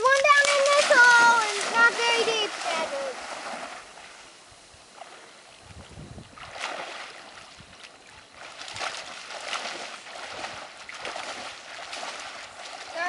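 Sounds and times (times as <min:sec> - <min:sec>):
waves washing on shore: 0:00.0 - 0:05.6, 0:06.3 - 0:13.0.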